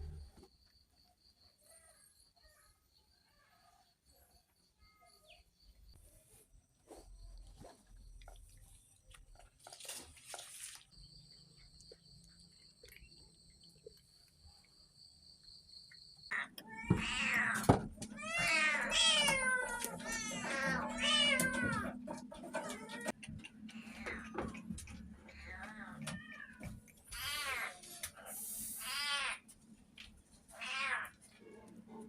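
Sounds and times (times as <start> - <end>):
cats meowing: 16.3 - 28.1, 28.8 - 29.4, 30.5 - 31.2.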